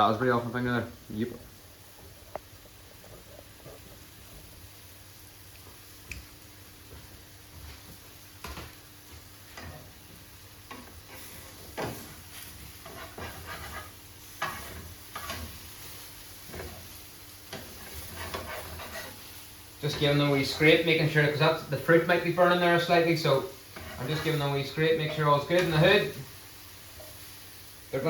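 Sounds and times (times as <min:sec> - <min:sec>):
faint sizzle: 0:00.0 - 0:28.0
spatula scraping frying pan: 0:10.7 - 0:26.3.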